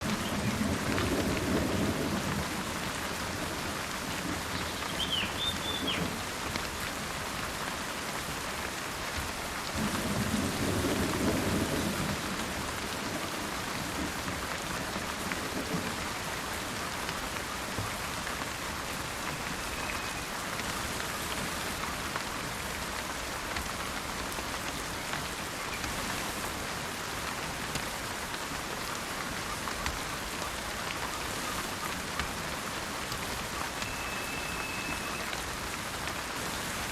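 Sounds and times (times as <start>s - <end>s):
low rolls of thunder: 0.0s - 4.8s, 9.8s - 16.5s
steady rain falling: 0.0s - 36.9s
bird high call: 4.6s - 6.1s, 19.4s - 20.3s, 33.7s - 35.4s.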